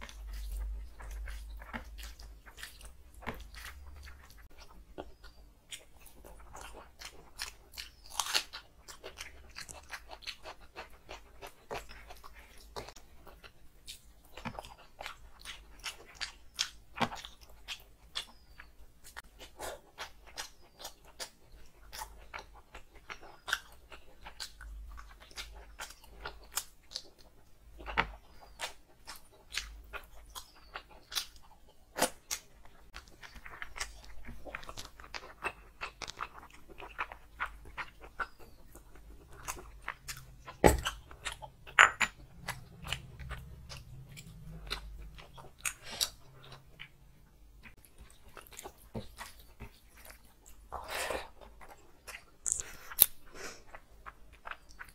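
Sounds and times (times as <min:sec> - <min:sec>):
chewing and lip smacking: 0:00.0 - 0:54.9
crunchy bites: 0:47.6 - 0:54.9.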